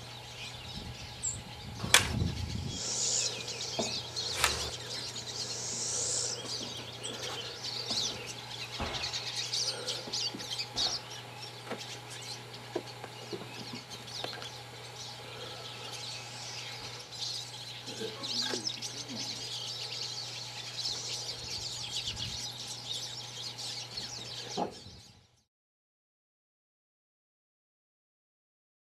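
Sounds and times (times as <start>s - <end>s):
constant low hum: 0.0s - 25.5s
small birds chirping: 0.0s - 25.5s.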